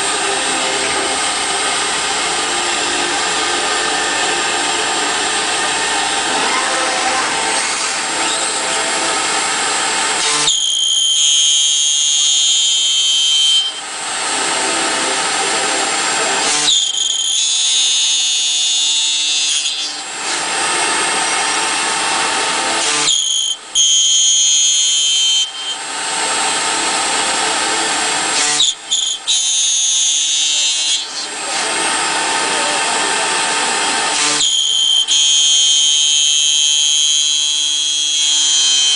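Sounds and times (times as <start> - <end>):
router milling metal: 0.0 - 38.9
router spindle high whine: 0.0 - 38.9.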